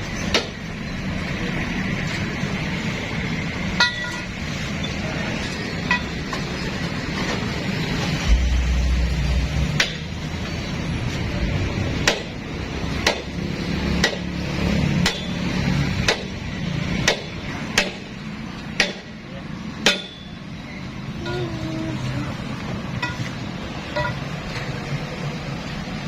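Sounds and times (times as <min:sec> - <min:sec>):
low engine rumble: 0:00.0 - 0:26.0
hammer striking hard: 0:08.2 - 0:10.2, 0:12.0 - 0:12.4, 0:13.0 - 0:13.4, 0:14.0 - 0:14.3, 0:15.0 - 0:15.4, 0:16.0 - 0:16.4, 0:17.0 - 0:18.1, 0:18.8 - 0:19.1, 0:19.8 - 0:20.3.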